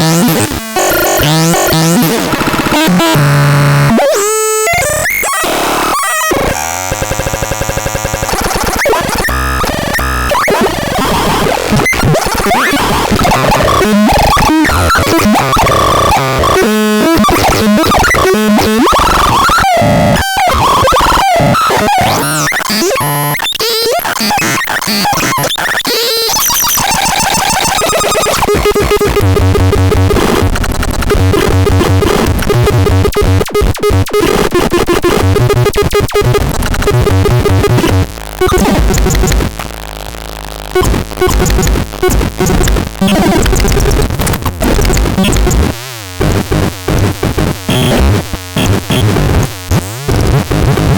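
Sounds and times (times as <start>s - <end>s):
harsh noisy synthesizer: 0.0s - 50.9s
pulsing synthesizer pattern: 26.4s - 34.2s.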